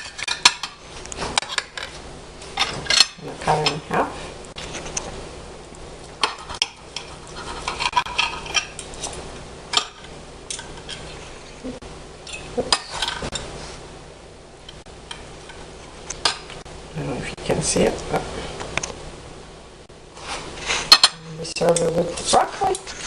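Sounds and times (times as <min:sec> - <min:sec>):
cutlery clinking and scraping dish: 0:06.2 - 0:09.2.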